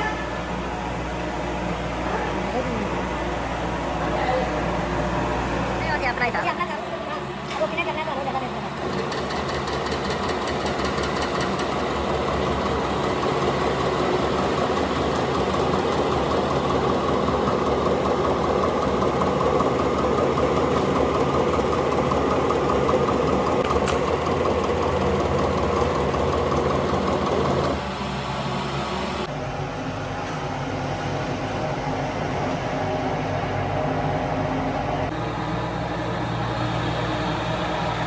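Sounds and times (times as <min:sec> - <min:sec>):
factory machinery droning: 0:00.0 - 0:38.0
fast mechanical rattle: 0:08.8 - 0:28.0.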